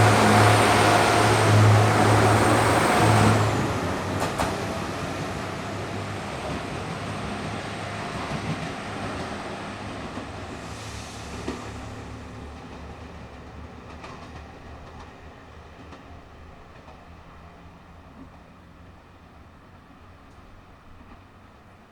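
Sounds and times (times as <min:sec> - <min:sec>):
diesel train engines accelerating: 0:00.0 - 0:16.6.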